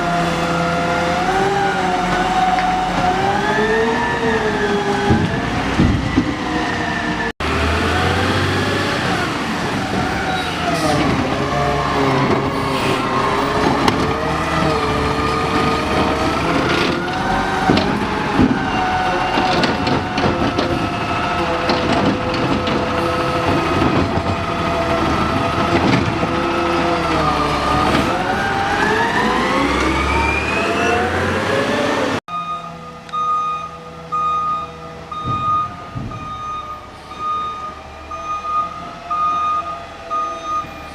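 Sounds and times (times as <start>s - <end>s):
garbage truck engine running: 7.4s - 30.0s
truck reversing beeper: 27.2s - 31.6s, 32.3s - 40.9s.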